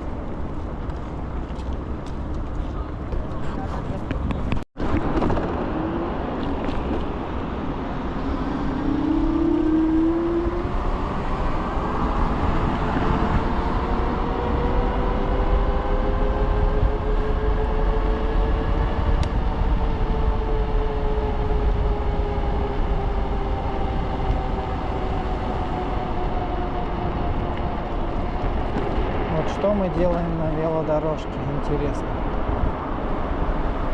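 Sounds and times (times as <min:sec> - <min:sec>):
road and wind rumble: 0:00.0 - 0:33.9
electric scooter whine: 0:04.8 - 0:29.6.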